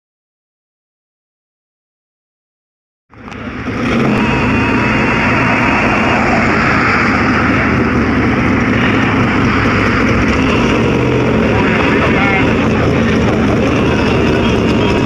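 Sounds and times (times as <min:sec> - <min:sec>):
car engine running: 0:03.1 - 0:15.0.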